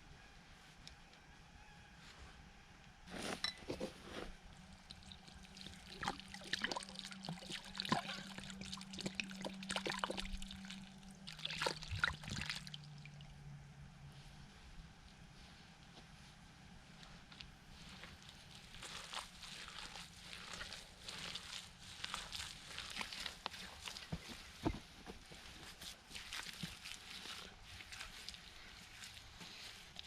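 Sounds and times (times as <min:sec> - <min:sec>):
low steady hum: 0:00.0 - 0:30.0
water pouring and splashing: 0:04.7 - 0:13.2, 0:18.0 - 0:30.0.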